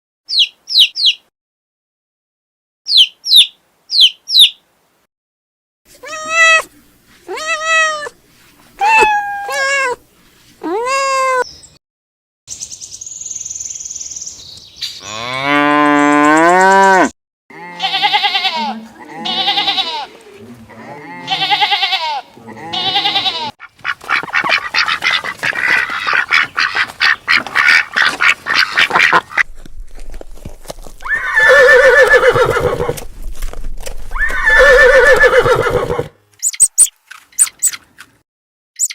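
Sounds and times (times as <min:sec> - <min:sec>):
cow mooing: 0:15.0 - 0:23.5
farm animals calling: 0:15.0 - 0:29.5, 0:31.0 - 0:33.0, 0:34.2 - 0:37.8
dense rapid animal chatter: 0:23.6 - 0:29.4.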